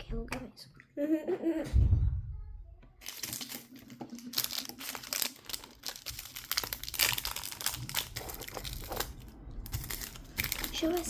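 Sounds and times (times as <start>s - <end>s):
plastic bags crinkling: 3.0s - 11.0s.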